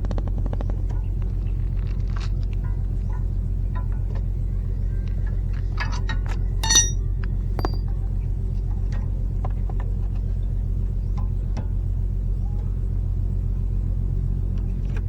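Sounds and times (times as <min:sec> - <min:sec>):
low engine rumble: 0:00.0 - 0:15.0
light metallic clinks: 0:02.6 - 0:08.2
ringing clink of metal on metal: 0:05.8 - 0:08.0.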